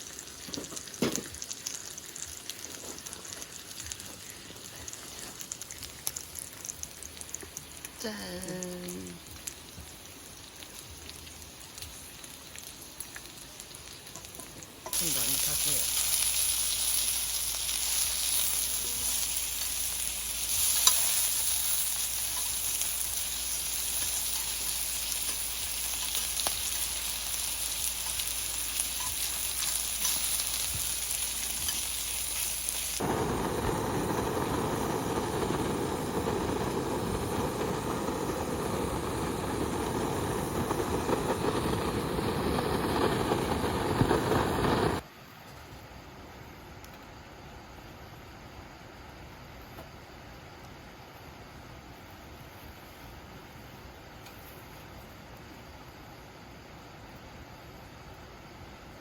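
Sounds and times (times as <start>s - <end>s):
food sizzling on a grill: 0.0s - 45.0s
low rushing noise: 33.0s - 45.0s.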